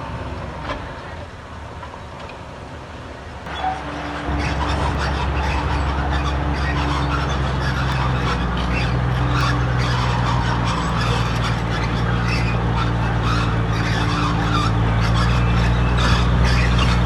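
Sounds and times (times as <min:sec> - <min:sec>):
heavy diesel machinery running: 0:02.5 - 0:17.0
scraping and squealing: 0:03.5 - 0:17.0.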